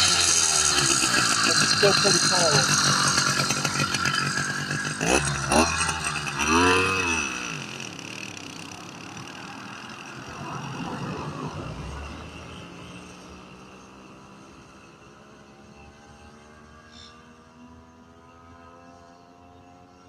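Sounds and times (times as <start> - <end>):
two-stroke engine revving: 0.0 - 14.8.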